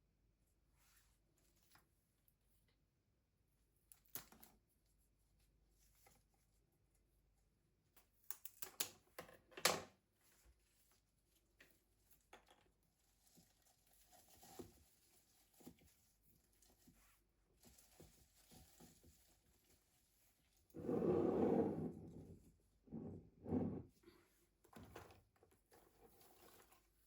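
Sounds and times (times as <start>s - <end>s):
light rustling of objects: 10.1s - 27.0s.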